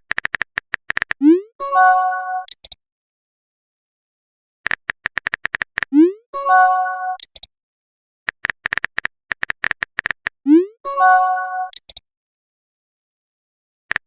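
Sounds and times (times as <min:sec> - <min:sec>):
chiming message tone: 0:01.6 - 0:02.5, 0:06.1 - 0:07.2, 0:10.9 - 0:11.7.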